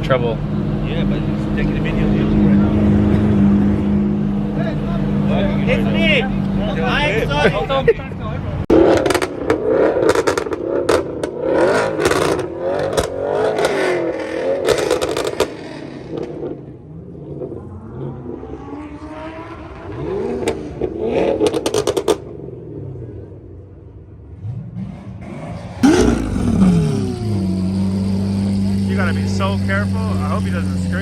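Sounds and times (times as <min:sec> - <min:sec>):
car engines revving: 0:00.0 - 0:31.0
sharp exhaust pops: 0:08.8 - 0:13.8, 0:14.6 - 0:16.4, 0:25.8 - 0:30.0.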